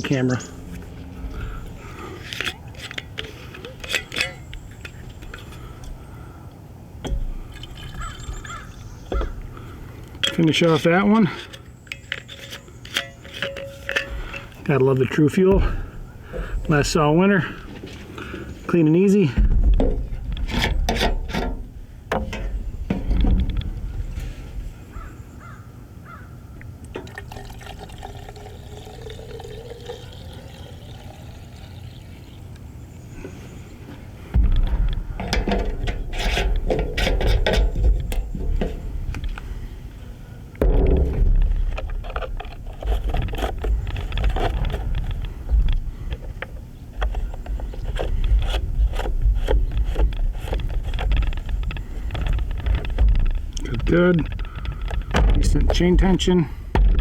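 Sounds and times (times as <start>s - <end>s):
fuel pouring into a tank: 7.1s - 8.6s, 26.9s - 32.6s.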